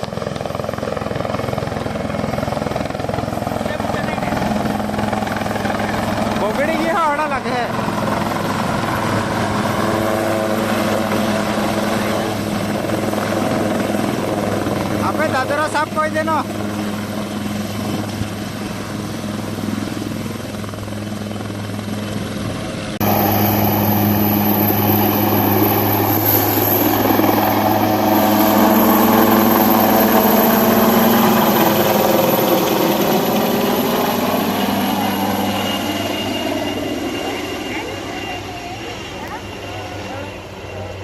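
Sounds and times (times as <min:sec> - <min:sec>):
helicopter rotor and turbine: 0:00.0 - 0:41.0.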